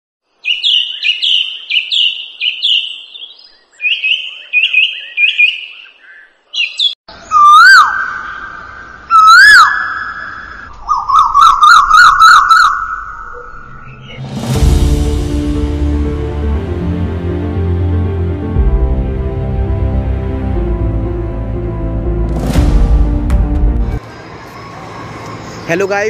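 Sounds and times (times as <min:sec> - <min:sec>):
loud whistled bird calls: 0:00.4 - 0:14.2
fast warbling bird trill: 0:07.2 - 0:14.2.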